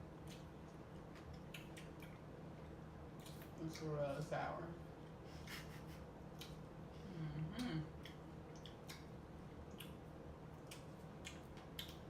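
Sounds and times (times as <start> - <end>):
person chewing fruit: 0.0 - 3.9, 6.2 - 6.9, 7.5 - 12.0.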